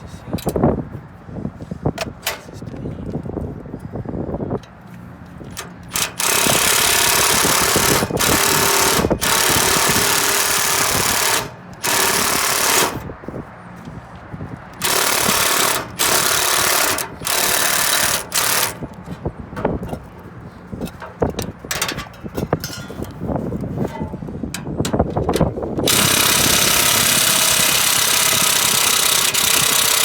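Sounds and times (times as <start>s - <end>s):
power driver whirring: 5.4s - 20.2s, 20.9s - 30.0s.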